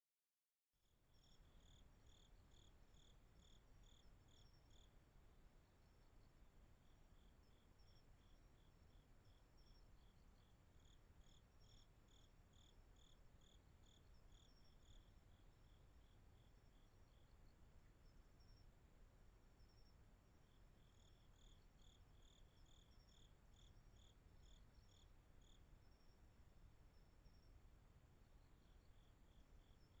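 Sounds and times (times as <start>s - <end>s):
faint insect trilling: 0.8s - 5.0s, 7.2s - 17.3s, 19.6s - 26.2s
cricket chirping: 0.8s - 30.0s
low background noise: 0.8s - 30.0s
low hiss: 0.9s - 30.0s.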